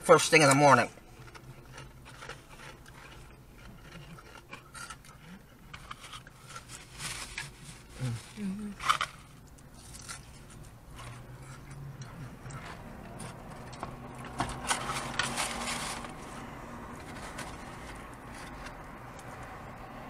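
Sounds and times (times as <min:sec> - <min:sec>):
low steady hum: 0:00.0 - 0:20.0
chewing and crunching fried fish: 0:00.1 - 0:20.0
paper wrappers rustling: 0:05.8 - 0:11.2, 0:12.5 - 0:19.0.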